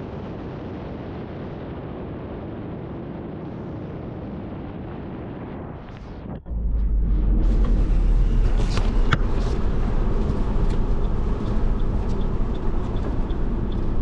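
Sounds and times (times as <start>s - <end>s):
tyre and road noise inside car: 6.3s - 14.0s.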